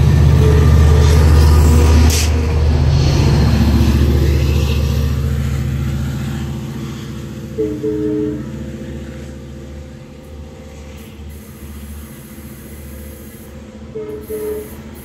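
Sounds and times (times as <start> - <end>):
train horn blast: 0.0 - 2.3, 7.5 - 8.6, 13.9 - 14.8
diesel train engine rumble: 0.0 - 15.0.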